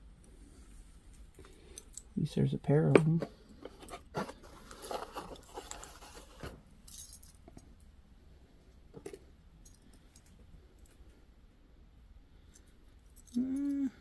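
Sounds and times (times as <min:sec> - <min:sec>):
metal jewelry clinking: 0:06.8 - 0:07.5, 0:12.4 - 0:13.8.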